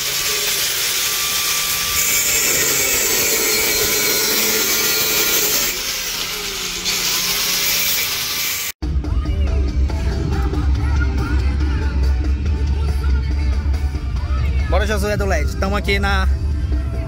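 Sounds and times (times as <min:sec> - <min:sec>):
power tool rasping wood: 0:00.0 - 0:08.8.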